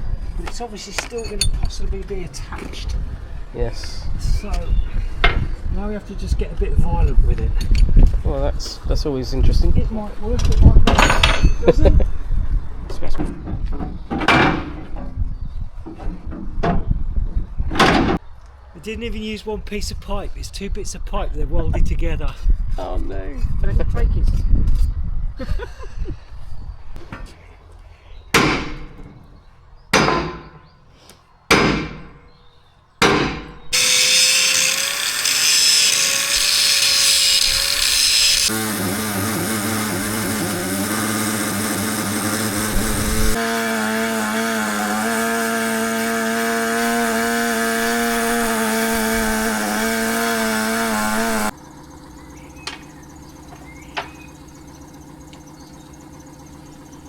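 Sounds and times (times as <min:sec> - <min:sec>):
power grinder on metal: 0:33.7 - 0:51.5.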